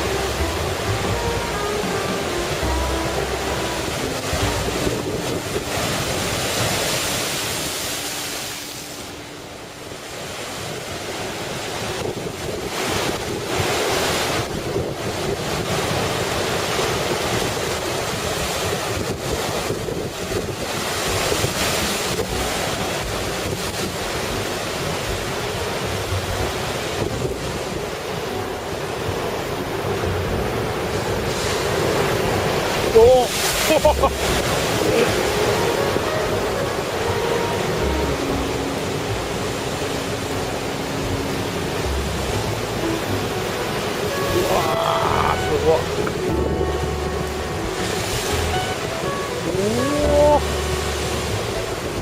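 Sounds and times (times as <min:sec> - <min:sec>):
heavy surf crashing: 0:00.0 - 0:52.0
wind buffeting microphone: 0:10.0 - 0:33.6.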